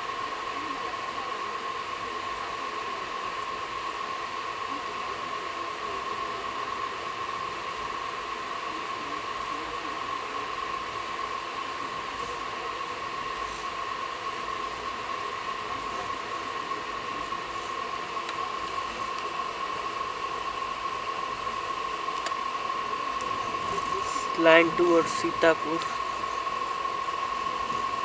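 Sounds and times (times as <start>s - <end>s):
train running noise from inside: 0.0s - 28.0s.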